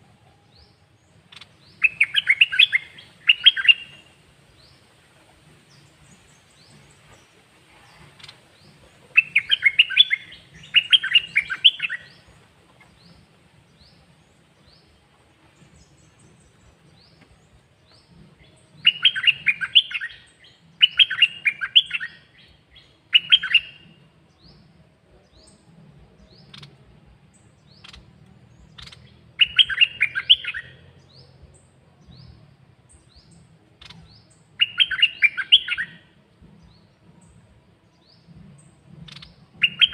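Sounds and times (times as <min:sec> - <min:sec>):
songbird warbling: 0:00.5 - 0:04.8, 0:05.7 - 0:14.1, 0:16.1 - 0:24.7, 0:26.3 - 0:26.8, 0:27.4 - 0:31.4, 0:33.2 - 0:36.2, 0:38.9 - 0:39.9.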